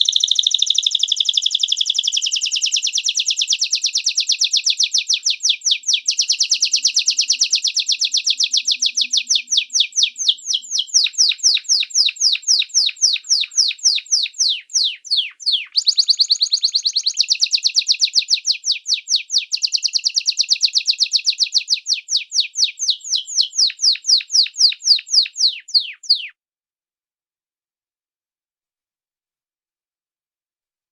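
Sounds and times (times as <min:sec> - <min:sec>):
songbird singing whistled trill: 0:00.0 - 0:26.4.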